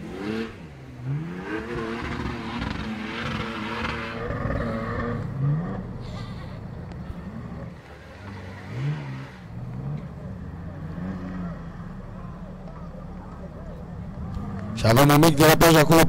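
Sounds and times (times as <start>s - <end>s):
off-road engine revving: 0.0s - 16.0s.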